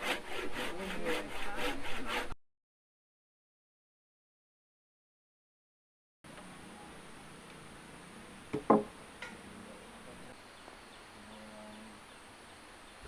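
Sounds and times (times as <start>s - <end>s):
sharp knocks: 8.5s - 9.4s.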